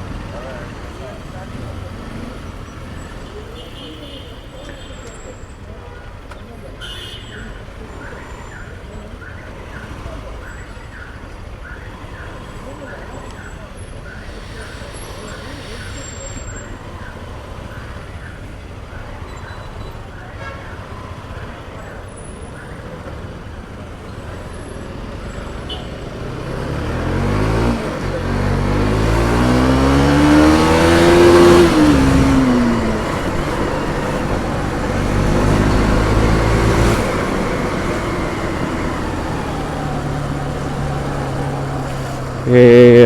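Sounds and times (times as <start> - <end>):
motorcycle engine accelerating: 24.3 - 43.0.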